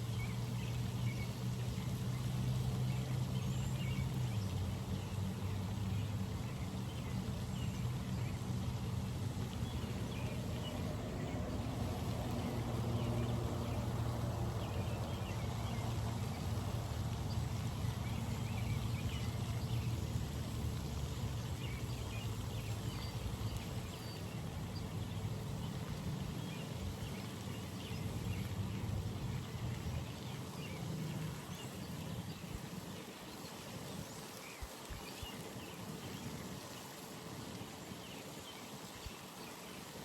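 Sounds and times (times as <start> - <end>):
low steady rumble: 0.0 - 31.5.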